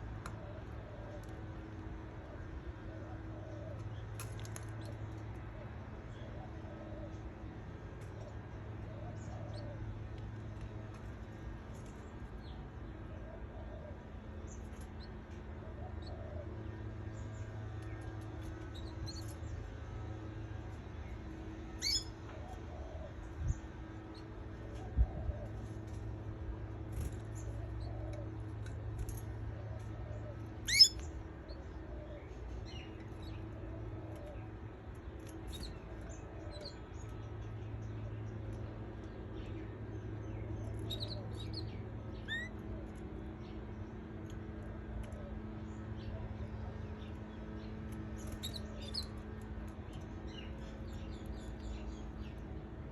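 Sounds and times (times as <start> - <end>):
steady low hum: 0.0 - 52.9
canaries chirping: 30.6 - 31.0, 48.1 - 49.2.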